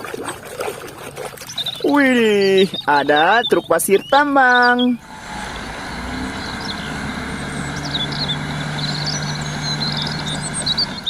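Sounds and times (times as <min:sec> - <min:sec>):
birds chirping: 0:01.4 - 0:11.0
truck engine idling: 0:04.1 - 0:11.0.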